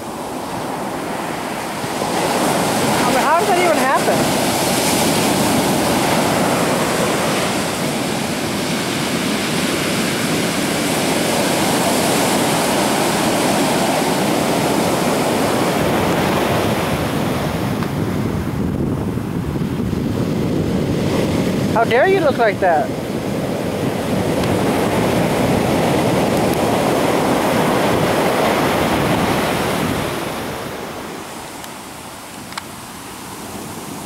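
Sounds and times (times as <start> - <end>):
waves breaking on shore: 0.0 - 34.0
wind on microphone: 0.0 - 34.0.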